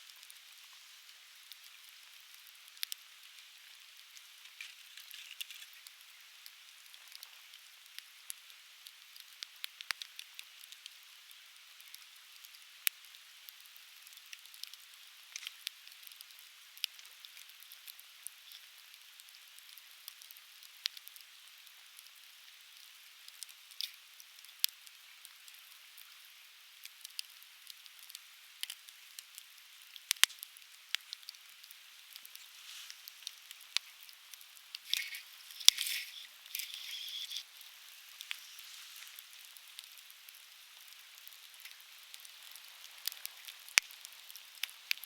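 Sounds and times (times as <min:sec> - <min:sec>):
firewood crackling and popping: 0:00.0 - 0:45.0
fire hissing: 0:30.9 - 0:40.4.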